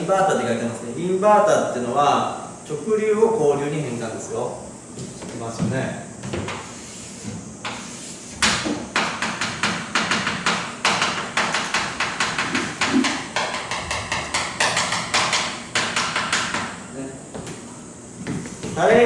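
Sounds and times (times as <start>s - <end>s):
marker tapping on board: 7.6s - 16.8s.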